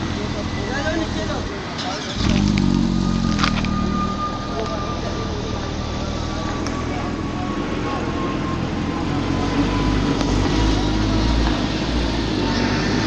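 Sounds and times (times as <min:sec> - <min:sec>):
sports car engine running: 0:00.0 - 0:12.8.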